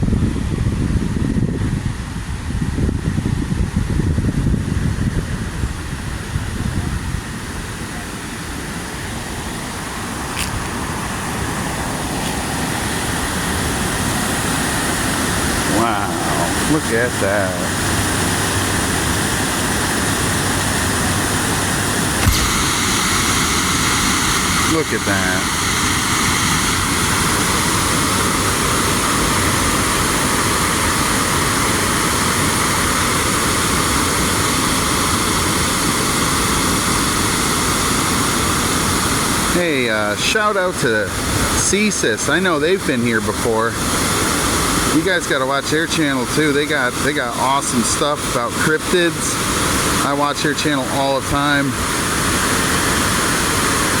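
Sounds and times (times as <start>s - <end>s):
water rushing over dam: 3.8s - 54.0s
brief click: 22.2s - 22.6s.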